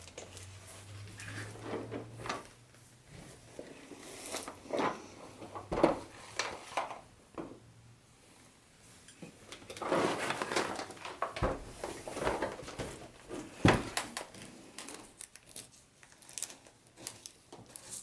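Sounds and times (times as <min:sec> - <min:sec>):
box and packaging handling: 0:09.6 - 0:18.0.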